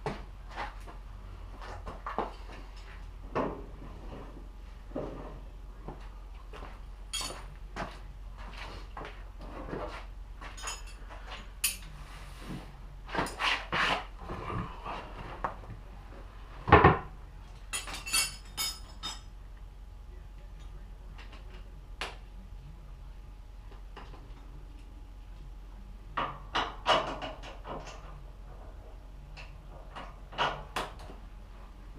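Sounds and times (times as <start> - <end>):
low steady hum: 0.0 - 31.9
metal tools clinking and knocking: 7.1 - 7.5, 10.4 - 12.0, 17.6 - 19.3.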